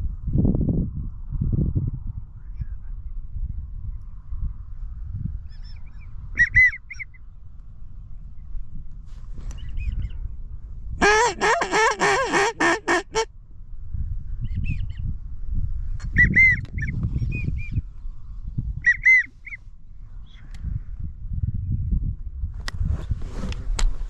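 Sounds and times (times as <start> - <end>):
low wind rumble: 0.0 - 24.0
duck whistling calls: 6.4 - 7.1, 11.0 - 13.3, 18.8 - 19.6.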